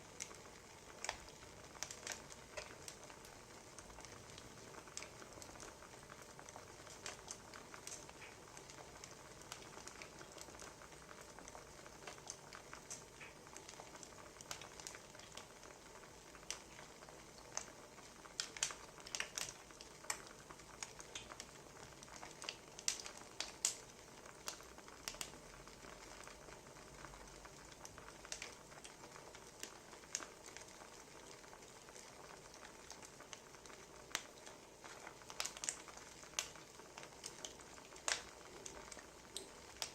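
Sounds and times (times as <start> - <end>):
soft steady hiss: 0.0 - 39.9
wood fire crackling: 0.0 - 39.9
sharp pops from fire: 18.4 - 21.5, 22.4 - 23.8, 34.1 - 34.4, 35.3 - 36.6, 37.2 - 39.9.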